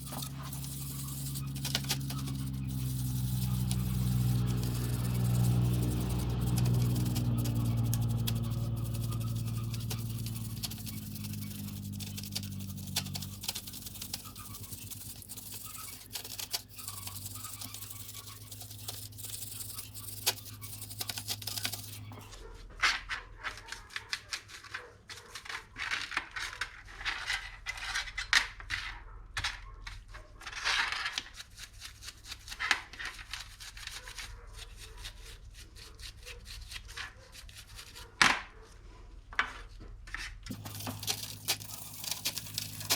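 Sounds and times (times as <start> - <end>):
low hum: 0.0 - 22.3
stiff brush scrubbing chain: 0.0 - 22.4, 40.5 - 42.9.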